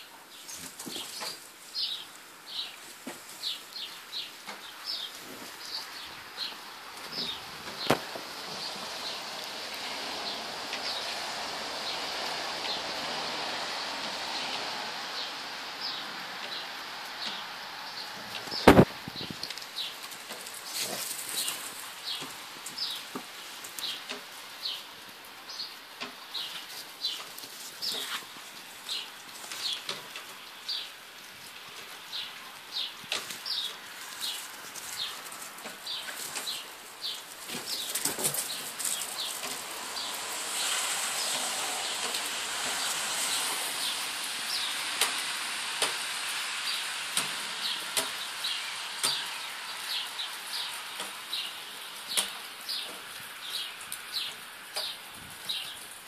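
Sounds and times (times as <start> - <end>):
bird chirping: 0.0 - 9.4, 15.2 - 24.9, 32.1 - 35.2, 35.8 - 46.0
rustling hiss: 0.0 - 56.0.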